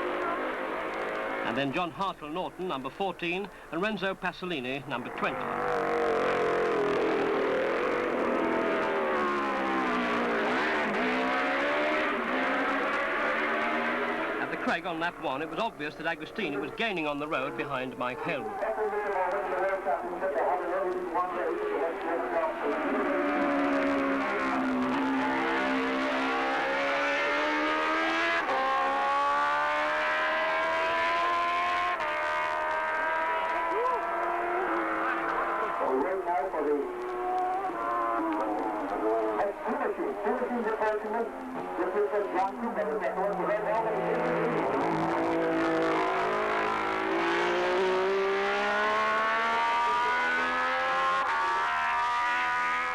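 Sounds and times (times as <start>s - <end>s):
motorcycle engine accelerating: 5.3s - 15.2s, 20.6s - 52.9s.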